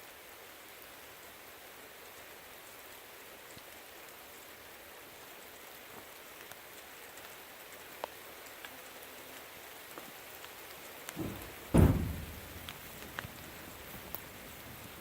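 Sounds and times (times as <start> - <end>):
steady rain falling: 0.0 - 15.0
drops ticking on hard surfaces: 9.9 - 14.4
low rumbling thump: 11.2 - 12.8.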